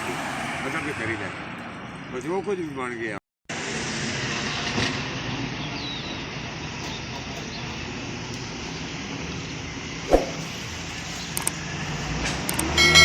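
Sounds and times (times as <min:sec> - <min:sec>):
motor vehicle running: 0:03.5 - 0:13.0.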